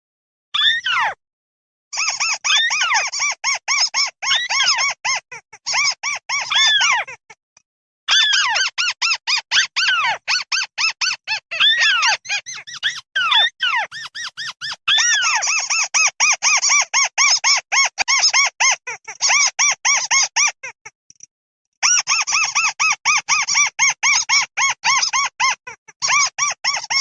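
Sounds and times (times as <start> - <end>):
bird chirping call: 8.2 - 16.3.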